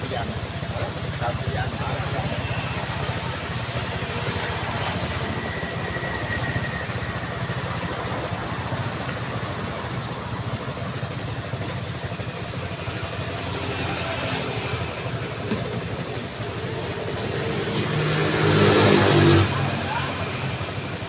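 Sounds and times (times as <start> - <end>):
vehicle engines rumbling: 0.0 - 21.0.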